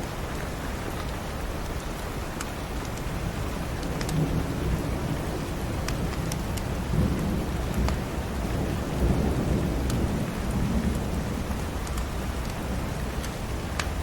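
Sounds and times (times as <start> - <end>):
steady rain: 0.0 - 14.0
thunder rumbling: 3.2 - 11.8.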